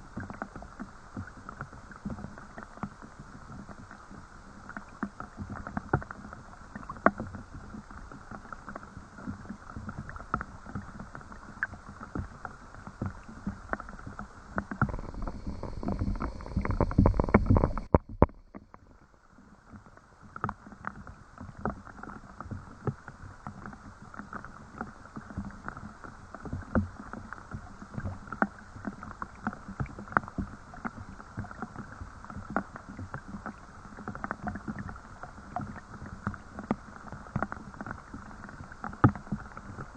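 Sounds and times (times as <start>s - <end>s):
raindrops tapping: 14.8s - 18.4s
low rumble: 14.8s - 18.5s.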